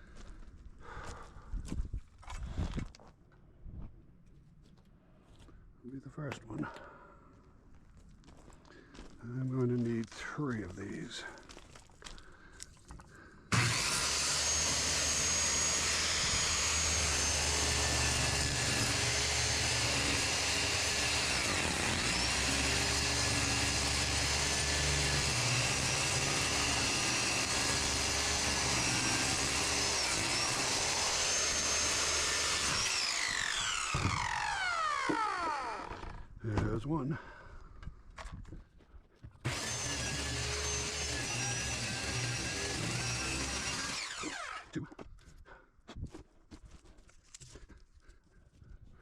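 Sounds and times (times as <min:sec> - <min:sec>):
circular saw cutting wood: 0:13.5 - 0:36.3, 0:39.4 - 0:44.8.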